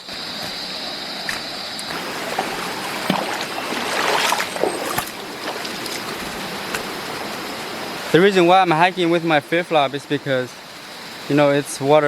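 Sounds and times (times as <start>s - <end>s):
high insect drone: 0.0s - 12.0s
stream water rushing: 0.0s - 12.0s
water splashing: 1.9s - 11.3s.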